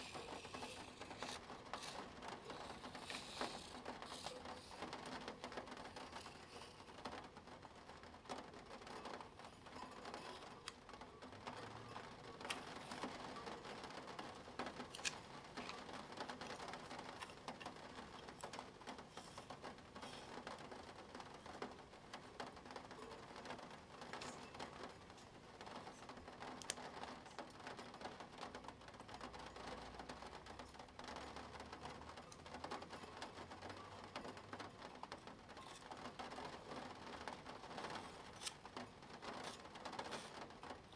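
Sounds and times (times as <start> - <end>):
pen ticking and scratching on paper: 0.0 - 7.6, 8.4 - 28.6, 29.3 - 40.9
plastic gear clicks: 14.8 - 18.5.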